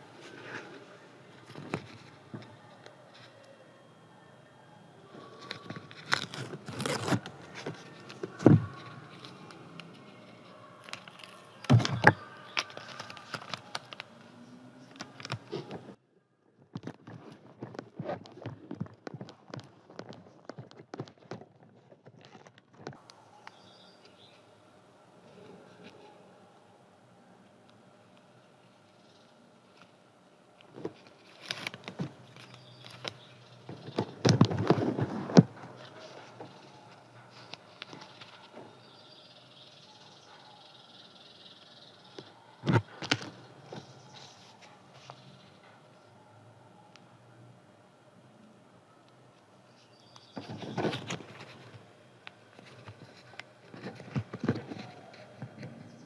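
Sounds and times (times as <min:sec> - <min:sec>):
paper rustling: 0:05.2 - 0:16.0, 0:30.7 - 0:38.7, 0:50.4 - 0:51.8.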